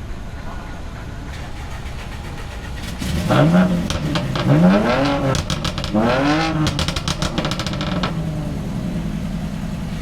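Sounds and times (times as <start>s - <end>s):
car engine revving and idling: 1.3s - 10.0s
exhaust crackles: 1.3s - 10.0s.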